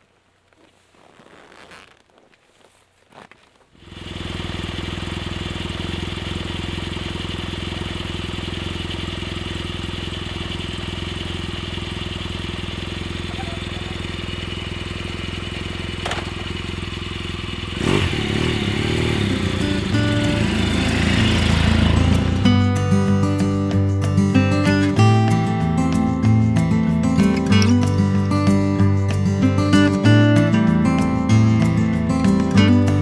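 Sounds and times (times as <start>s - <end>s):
motorcycle engine idling: 3.8s - 29.4s.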